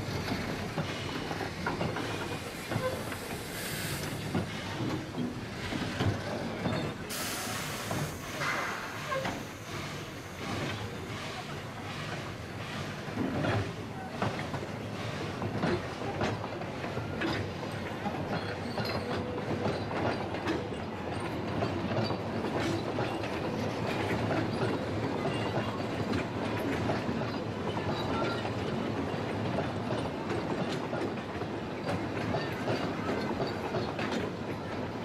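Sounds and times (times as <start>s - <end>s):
train running rumble: 0.0s - 35.0s
train wheels clicking over rail joints: 0.0s - 35.0s.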